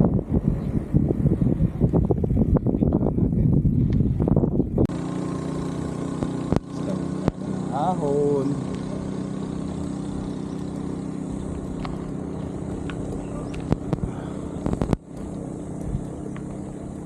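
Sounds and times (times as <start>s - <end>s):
motorcycle engine running: 0.0s - 17.0s
sharp clicks: 12.8s - 16.6s.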